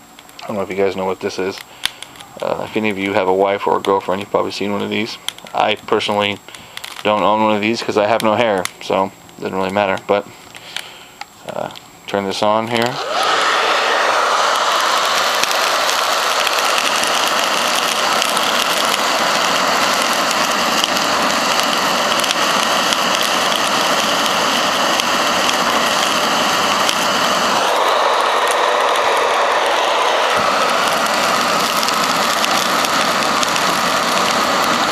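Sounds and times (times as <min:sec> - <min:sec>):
hair dryer running: 0:12.8 - 0:34.9.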